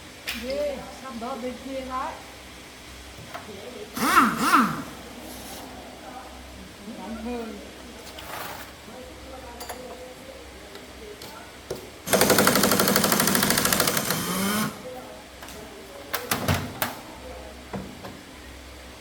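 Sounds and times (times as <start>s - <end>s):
pneumatic impact wrench hammering: 4.0s - 4.9s, 12.1s - 14.8s.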